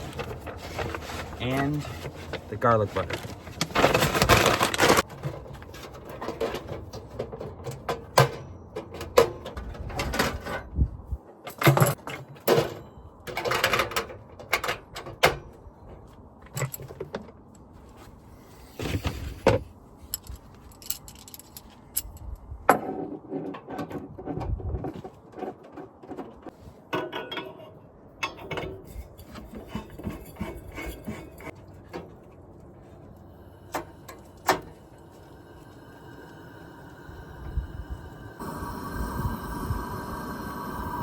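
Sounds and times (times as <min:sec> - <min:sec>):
rustling: 0:00.0 - 0:05.8.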